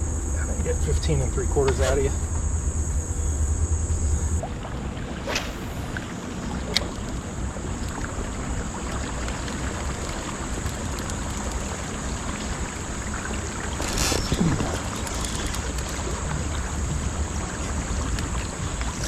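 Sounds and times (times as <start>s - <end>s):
river current rushing: 0.0s - 19.0s
wind on microphone: 13.8s - 19.0s.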